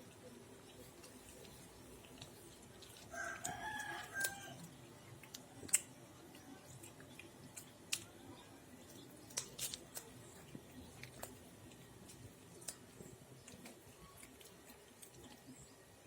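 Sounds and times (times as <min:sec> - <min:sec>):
rooster crowing: 0:03.1 - 0:04.7.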